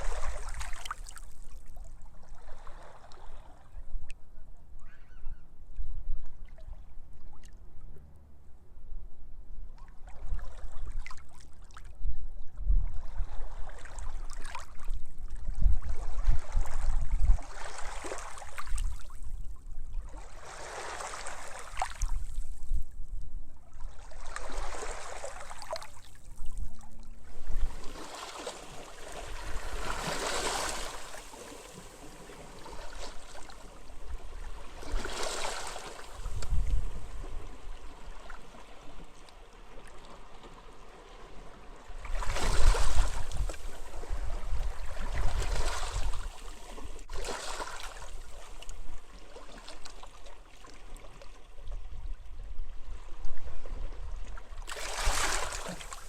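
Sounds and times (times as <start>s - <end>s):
small waves washing onto beach: 0.0s - 1.4s, 24.0s - 26.2s, 27.2s - 51.4s, 54.6s - 56.0s
wind buffeting microphone: 36.1s - 38.0s.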